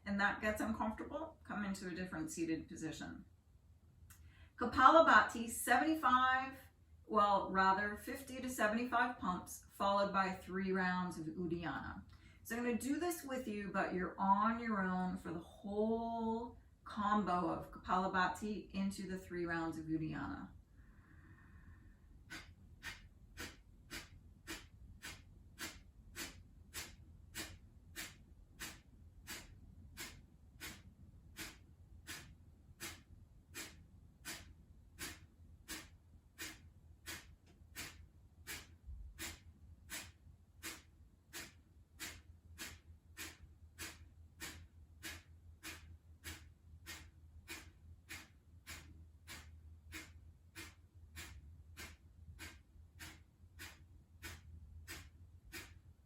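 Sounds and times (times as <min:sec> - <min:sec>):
sharp forced exhales through nose: 0:20.7 - 0:55.8.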